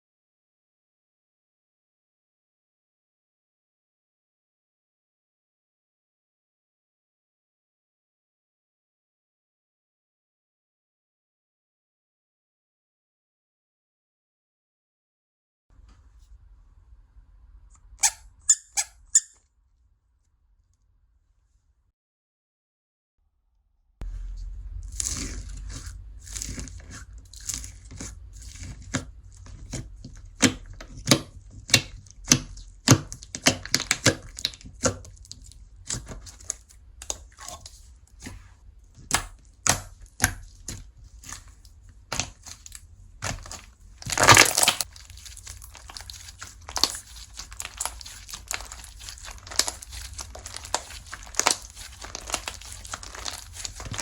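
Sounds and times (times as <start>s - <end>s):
slime popping and crackling: 24.9s - 37.8s, 39.0s - 54.0s.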